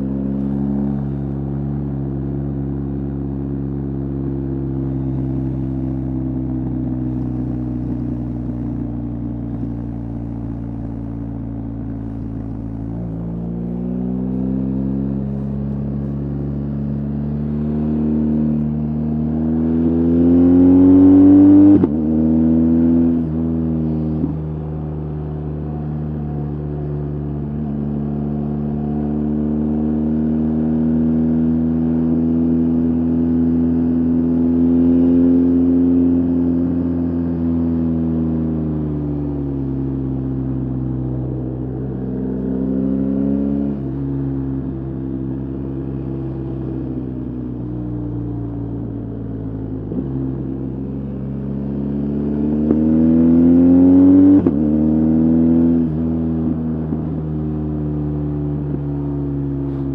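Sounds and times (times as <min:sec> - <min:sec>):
motorcycle engine revving: 0:04.8 - 0:26.5, 0:40.0 - 0:59.9.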